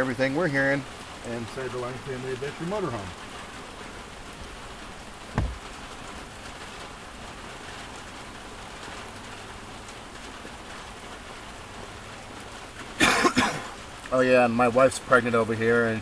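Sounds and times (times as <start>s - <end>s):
heavy rain on vehicle roof: 0.0s - 16.0s
brief thump: 5.3s - 5.8s.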